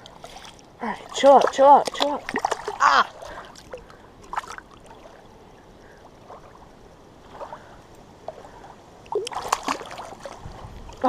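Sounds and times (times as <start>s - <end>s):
faint water murmuring: 0.0s - 11.0s.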